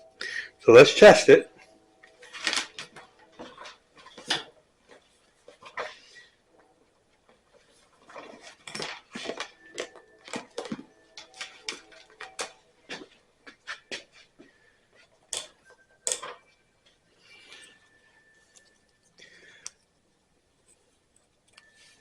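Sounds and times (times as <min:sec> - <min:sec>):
tools clicking and rattling: 0:02.0 - 0:06.0, 0:08.0 - 0:14.2, 0:15.3 - 0:16.5.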